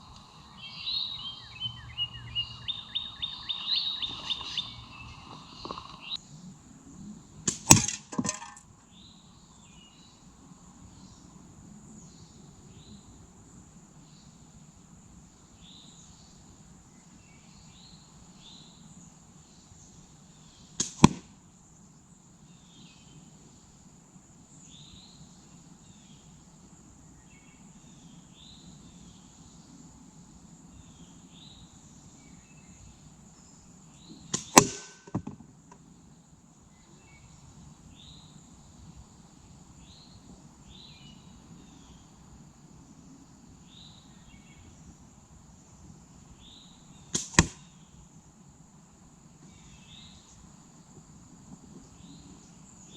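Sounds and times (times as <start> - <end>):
insect buzz: 0.0 - 52.9
bullet hitting target: 7.5 - 8.6, 20.8 - 21.3, 34.3 - 35.4, 47.2 - 47.6.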